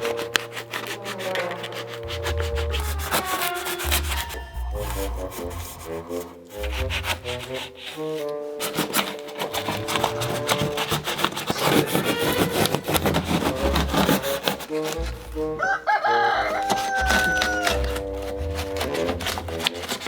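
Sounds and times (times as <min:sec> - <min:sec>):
background music: 0:00.0 - 0:20.0
blade rasping into wood: 0:00.0 - 0:20.0
rooster crowing: 0:03.0 - 0:04.8, 0:15.6 - 0:18.3.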